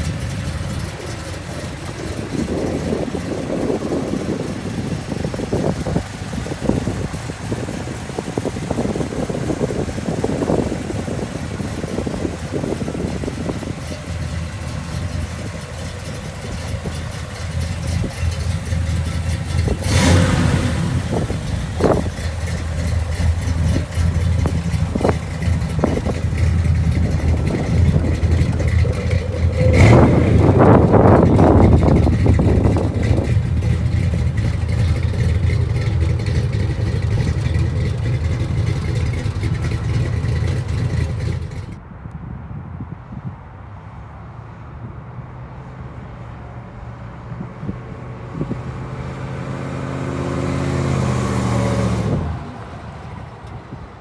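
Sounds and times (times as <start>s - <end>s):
car engine idling: 0.0s - 41.8s.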